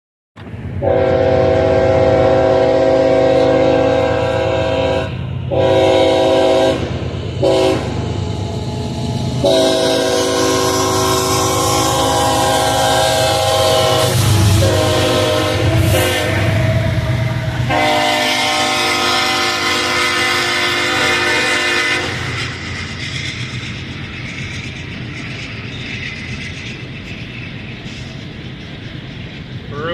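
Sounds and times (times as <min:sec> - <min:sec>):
passing train rumble: 0:00.4 - 0:29.9
locomotive horn blasts: 0:00.8 - 0:08.0, 0:09.4 - 0:22.4.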